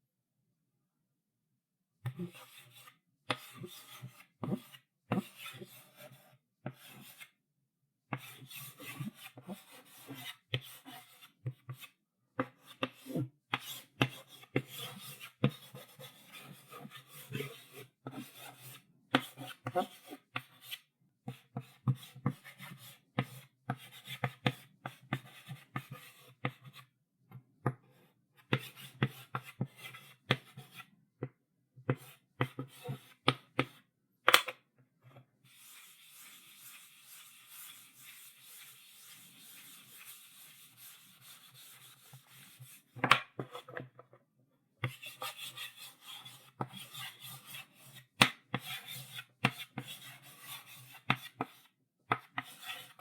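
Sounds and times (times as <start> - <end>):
chalk scratching on blackboard: 2.3 - 7.3, 8.1 - 12.0, 12.6 - 26.8, 35.4 - 43.8, 44.8 - 51.7, 52.3 - 53.0.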